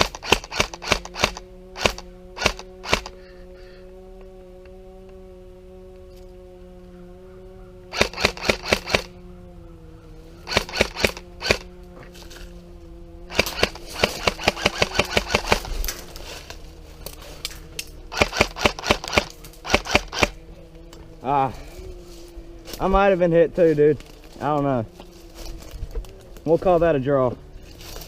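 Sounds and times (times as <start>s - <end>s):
airsoft guns firing bursts: 0.0s - 3.2s, 7.9s - 9.1s, 10.5s - 11.7s, 13.3s - 15.7s, 18.1s - 20.4s
steady low hum: 0.0s - 28.0s.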